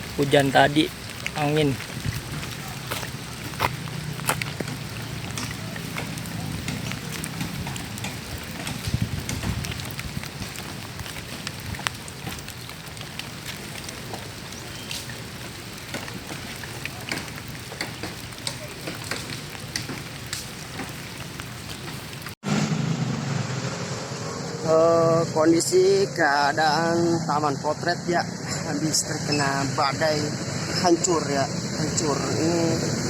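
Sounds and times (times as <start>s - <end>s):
rain drops ticking: 0.0s - 22.4s, 31.1s - 33.0s.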